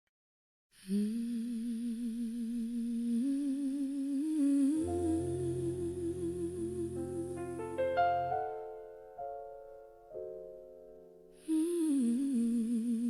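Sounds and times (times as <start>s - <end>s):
person humming with vibrato: 4.2s - 8.0s
low keyboard chords: 4.8s - 9.5s.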